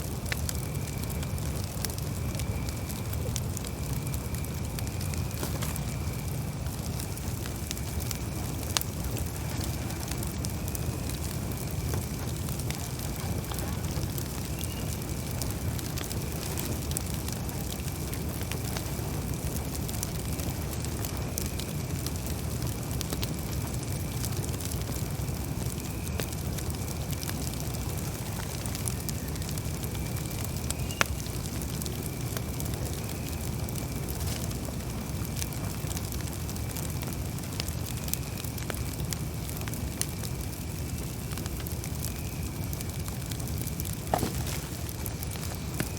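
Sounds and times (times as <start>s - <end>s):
steady low rumble: 0.0s - 30.6s, 39.0s - 45.9s
campfire crackling and popping: 0.0s - 45.9s
sharp pop of burning wood: 3.8s - 21.6s, 42.9s - 45.9s.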